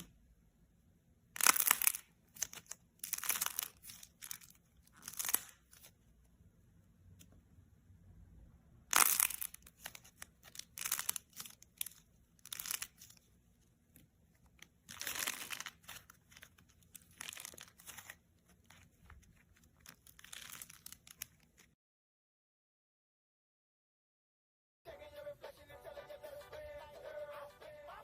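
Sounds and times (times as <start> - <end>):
crunchy slime crackling: 1.4 - 6.0, 8.9 - 13.3, 14.6 - 21.8.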